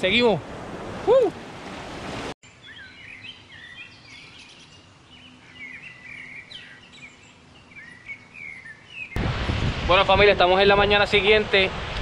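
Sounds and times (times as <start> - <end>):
birds chirping: 2.4 - 9.2.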